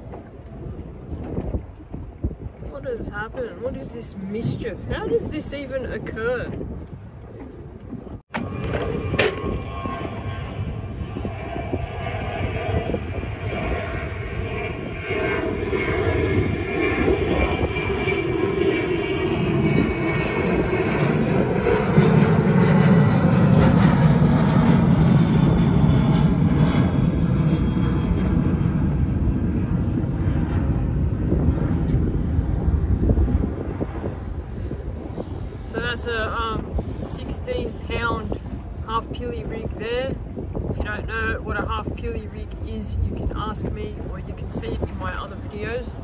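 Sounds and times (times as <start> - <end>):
jet airliner passing low: 0.0 - 46.0.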